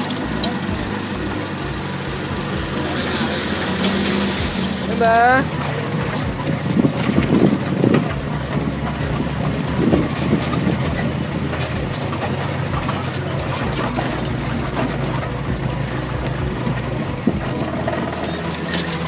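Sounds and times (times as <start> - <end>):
knocks and rattles: 0.0 - 19.0
vehicle engine running: 0.0 - 19.0.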